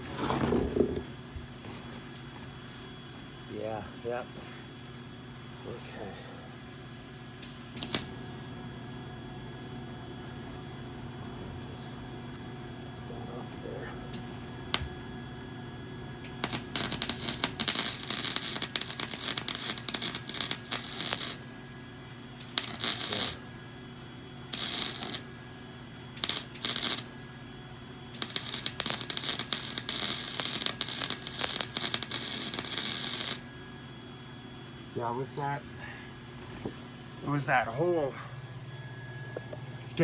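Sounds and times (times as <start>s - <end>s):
arc welder crackling: 7.4s - 8.2s, 14.1s - 15.0s, 16.2s - 21.6s, 22.3s - 23.5s, 24.4s - 25.4s, 26.1s - 27.2s, 28.1s - 33.5s.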